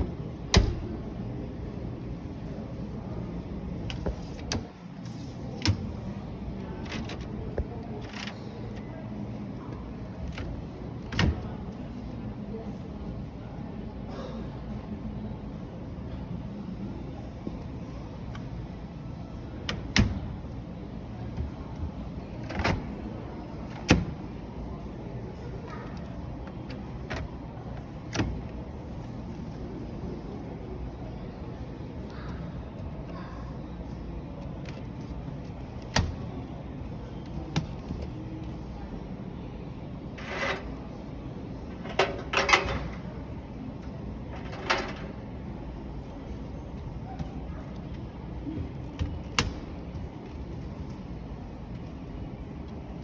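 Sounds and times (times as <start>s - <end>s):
low store hum: 0.0s - 53.0s
washing machine doors banging: 0.5s - 1.0s, 41.7s - 43.1s.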